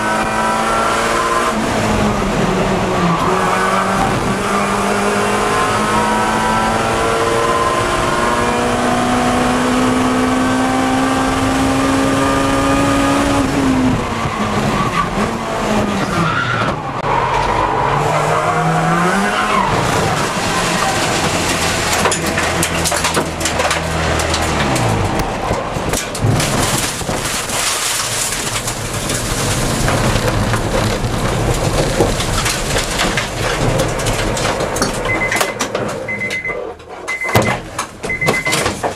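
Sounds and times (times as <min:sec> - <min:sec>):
race car engine accelerating: 0:00.0 - 0:25.8
road and wind noise: 0:00.0 - 0:38.9
rattles and knocks: 0:20.7 - 0:38.9.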